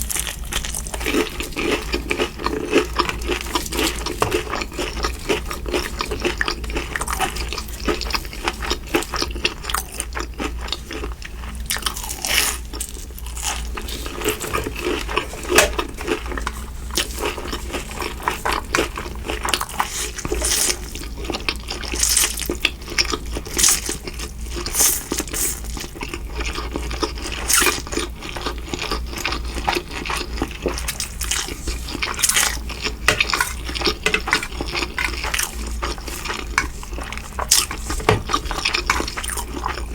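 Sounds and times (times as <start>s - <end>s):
crunching and chewing food: 0.0s - 39.9s
steady low hum: 29.1s - 39.9s.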